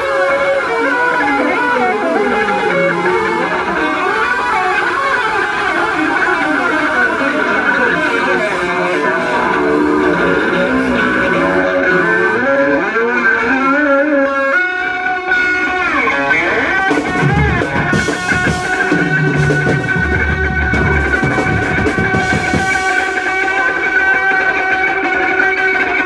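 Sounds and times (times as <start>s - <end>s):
effected electric bass: 0.0s - 24.6s
light drums: 16.8s - 23.7s.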